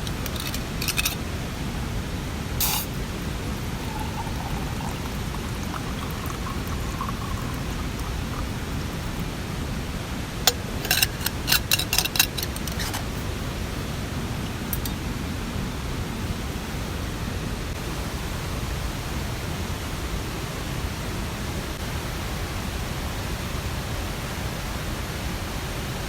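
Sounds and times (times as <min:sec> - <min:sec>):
water rushing: 0:00.0 - 0:16.9.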